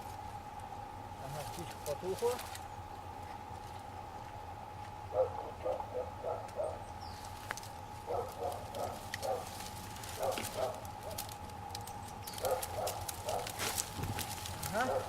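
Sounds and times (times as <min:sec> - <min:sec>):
animal calling: 0:05.1 - 0:07.2, 0:08.0 - 0:09.5, 0:12.2 - 0:13.6, 0:14.6 - 0:15.0.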